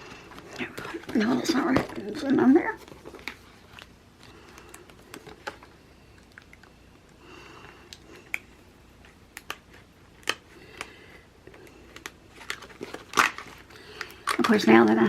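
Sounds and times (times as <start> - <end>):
hands handling stickers and paper: 11.5 - 15.0.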